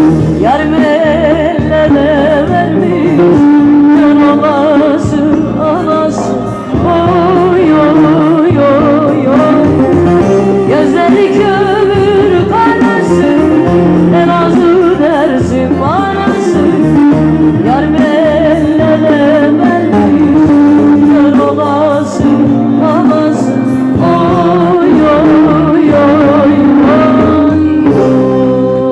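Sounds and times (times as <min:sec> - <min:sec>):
instrumental backing: 0:00.0 - 0:28.9
person singing with vibrato: 0:00.0 - 0:28.9.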